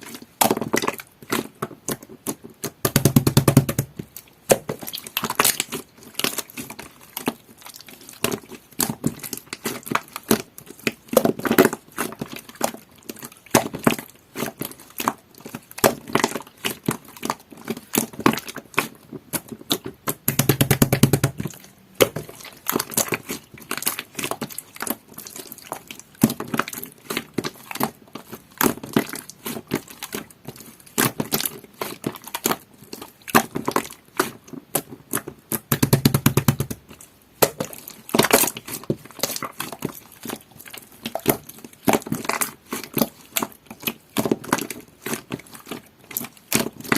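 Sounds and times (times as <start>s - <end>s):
slime squelch: 0.0s - 46.9s.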